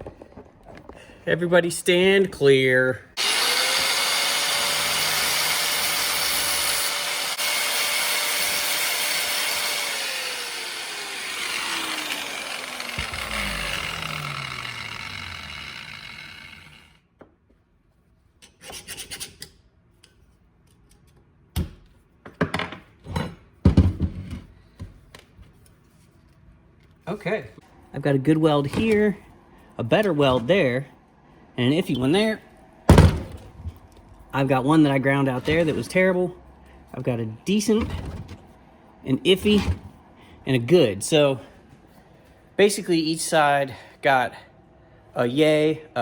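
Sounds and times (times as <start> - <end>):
angle grinder grinding metal: 3.2 - 17.0.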